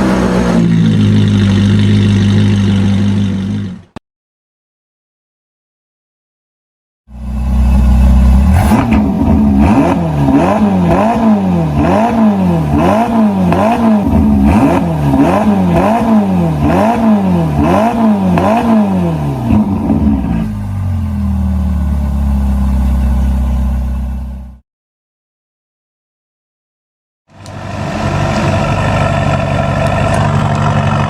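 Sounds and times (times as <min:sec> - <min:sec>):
car engine idling: 0:00.0 - 0:04.0, 0:07.1 - 0:09.8, 0:19.4 - 0:24.6, 0:27.3 - 0:31.0
engine revving throttle blips: 0:00.0 - 0:04.0, 0:07.1 - 0:24.6, 0:27.3 - 0:31.0.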